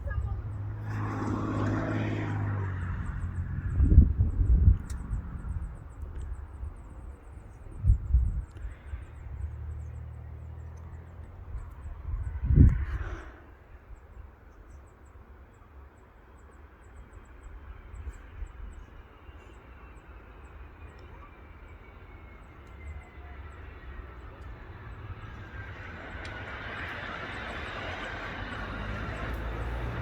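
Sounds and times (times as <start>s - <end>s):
wind rumble on microphone: 0.0s - 14.3s
distant jet engine whine: 0.0s - 14.4s, 15.0s - 30.0s.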